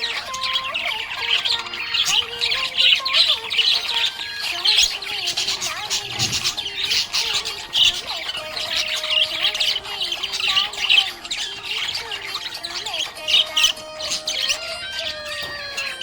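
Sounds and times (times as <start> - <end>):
budgies chirping and chattering: 0.0 - 16.0.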